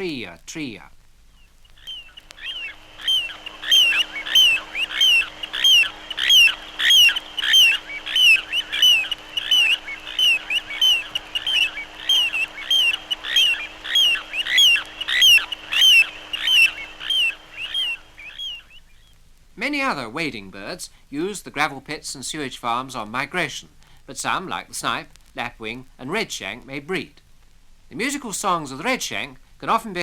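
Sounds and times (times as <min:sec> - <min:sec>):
plover singing short notes: 0:01.8 - 0:18.2.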